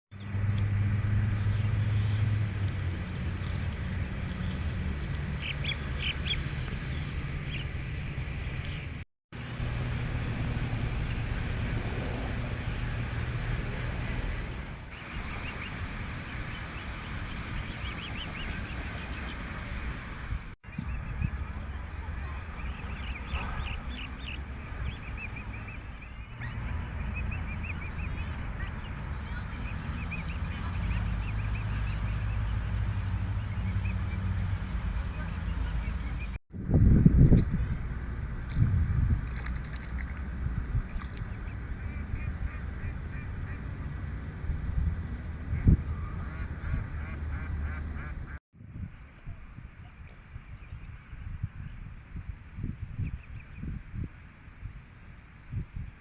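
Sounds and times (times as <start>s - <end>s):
steady low rumble: 0.3s - 33.5s, 35.6s - 56.0s
steady low hum: 9.4s - 28.8s
ducks quacking: 41.0s - 43.9s, 45.5s - 48.4s.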